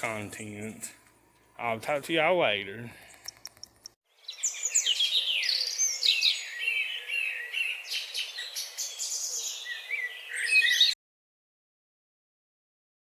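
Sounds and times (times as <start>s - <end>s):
birds chirping and singing: 0.0s - 2.2s, 2.9s - 11.0s.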